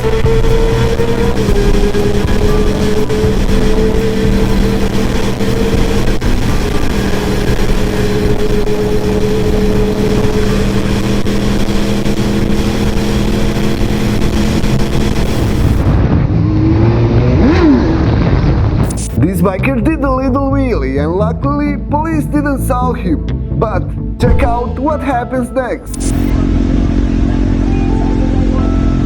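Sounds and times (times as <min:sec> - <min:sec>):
motorbike engine running: 0:00.0 - 0:18.2, 0:25.9 - 0:29.0
road and wind noise: 0:00.0 - 0:19.6, 0:25.9 - 0:29.0
engine revving: 0:00.0 - 0:20.0, 0:25.9 - 0:29.0.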